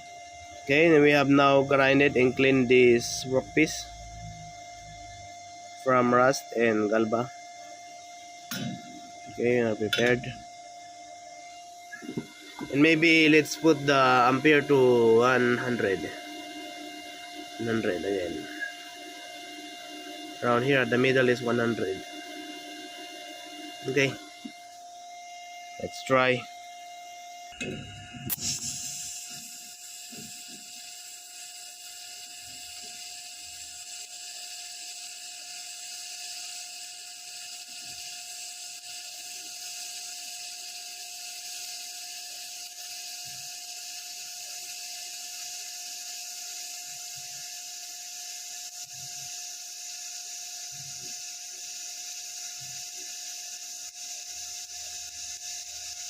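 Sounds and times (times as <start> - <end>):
welding arc hiss: 0.0 - 56.0
welding arc striking click: 8.5 - 9.0, 9.9 - 10.3, 27.5 - 30.8.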